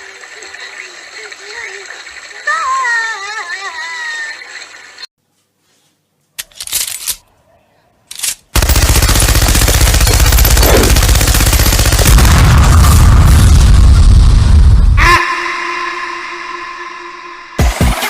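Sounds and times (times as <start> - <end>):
very fast rattle: 8.6 - 12.1.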